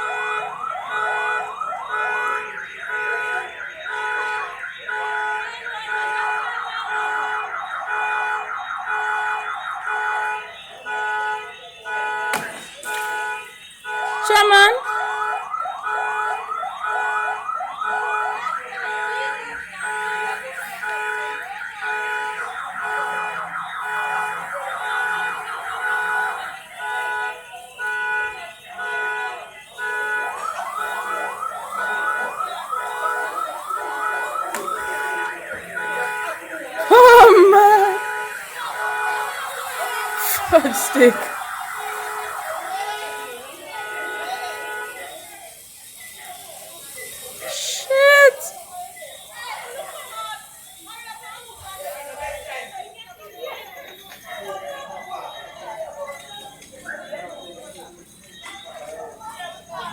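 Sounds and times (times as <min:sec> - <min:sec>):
siren in fast yelp: 0:30.4 - 0:36.1, 0:36.7 - 0:38.8, 0:39.5 - 0:43.0, 0:47.4 - 0:48.5.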